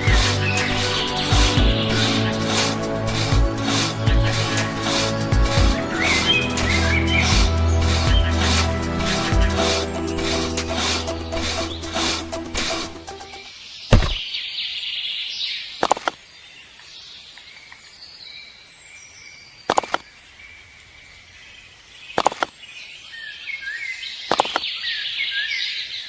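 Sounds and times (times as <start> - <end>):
small birds chirping: 0.0 - 12.1
sharp clicks or knocks: 13.9 - 14.2.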